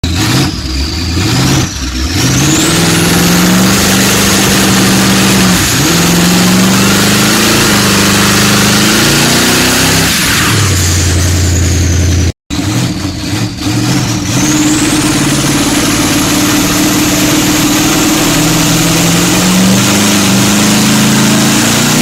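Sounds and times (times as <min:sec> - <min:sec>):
car engine accelerating through gears: 0:00.0 - 0:22.0
turbo whistle: 0:13.9 - 0:22.0.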